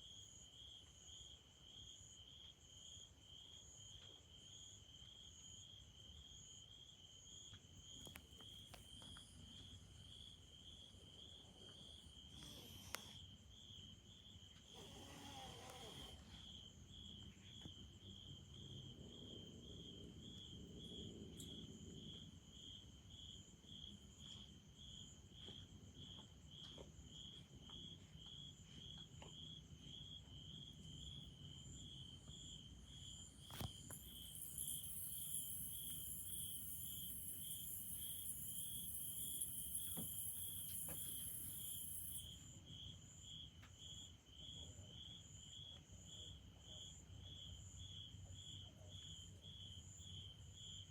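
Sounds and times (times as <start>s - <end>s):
cricket chirping: 0.0s - 50.9s
faint high hiss: 33.4s - 42.2s.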